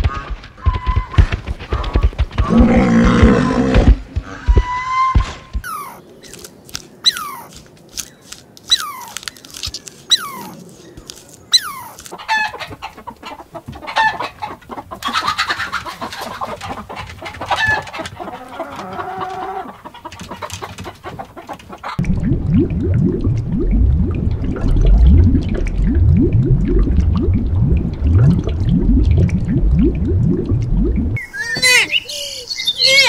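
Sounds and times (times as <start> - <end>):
chickens clucking: 10.1 - 22.1
loud low-pitched sound: 22.0 - 31.2.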